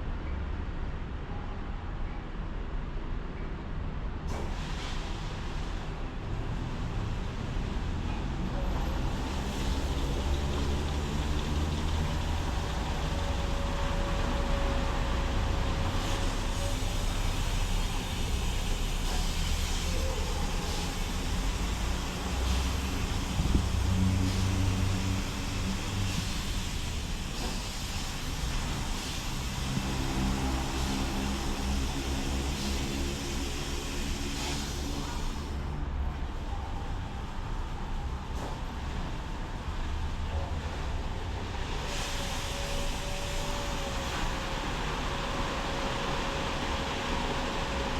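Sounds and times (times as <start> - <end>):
car wash machinery rumbling: 4.1 - 47.9
hiss of spraying water: 8.9 - 35.6, 41.5 - 47.9.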